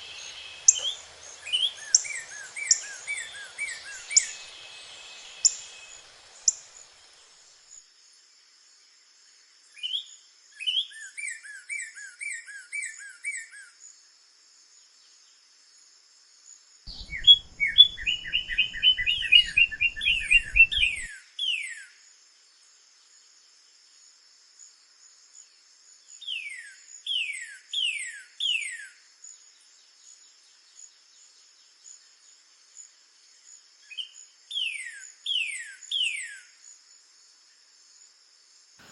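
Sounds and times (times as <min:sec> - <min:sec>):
bird whistling song: 0:00.0 - 0:07.0, 0:09.8 - 0:13.5, 0:16.9 - 0:21.9, 0:33.9 - 0:36.5
high insect drone: 0:00.0 - 0:09.0, 0:15.8 - 0:21.1.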